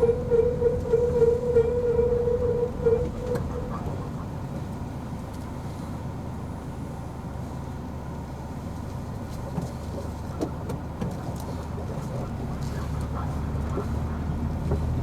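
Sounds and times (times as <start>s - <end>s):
high-pitched steering squeal: 0.0s - 4.0s
car engine rumble: 0.0s - 15.0s.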